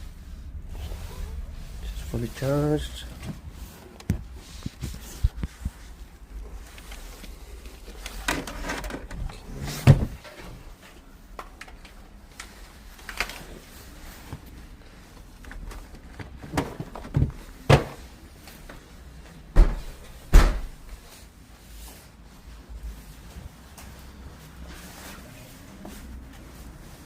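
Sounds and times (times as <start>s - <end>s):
knocks and clunks of handling: 7.8s - 10.6s, 15.4s - 18.1s
heavy thuds: 9.7s - 10.2s, 19.5s - 21.0s.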